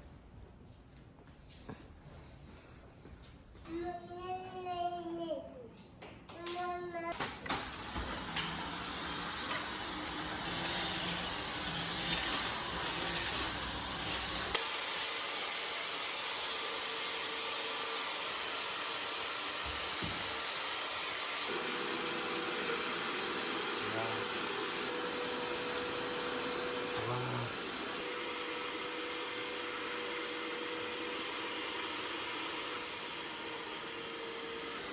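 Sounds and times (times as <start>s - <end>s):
vacuum cleaner motor running: 7.2s - 34.9s.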